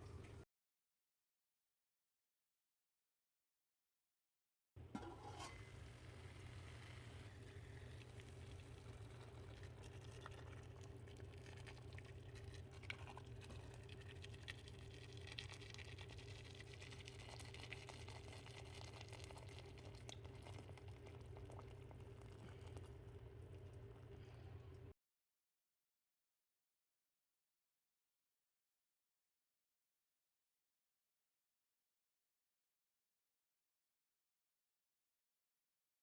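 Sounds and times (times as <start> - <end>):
pot simmering and bubbling: 4.8 - 24.9.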